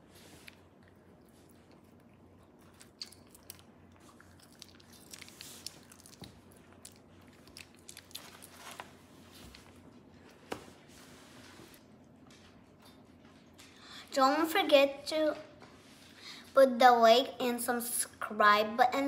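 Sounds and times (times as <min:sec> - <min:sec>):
chewing pizza: 0:00.0 - 0:10.4.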